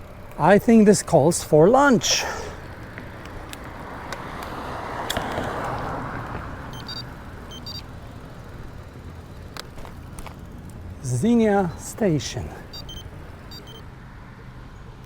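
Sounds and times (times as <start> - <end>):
car passing tyre noise: 0.0 - 13.8
faint clicks: 2.6 - 11.0
high-pitched chirps: 6.7 - 7.9, 12.7 - 13.8.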